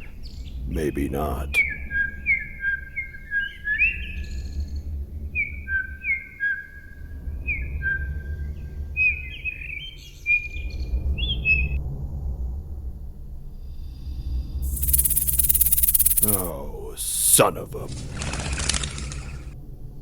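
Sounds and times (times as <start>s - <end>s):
birds chirping: 14.6s - 17.0s.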